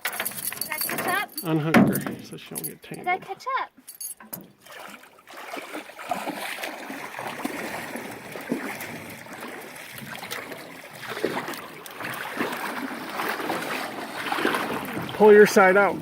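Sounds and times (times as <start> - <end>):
river water rippling and splashing: 4.4 - 16.0.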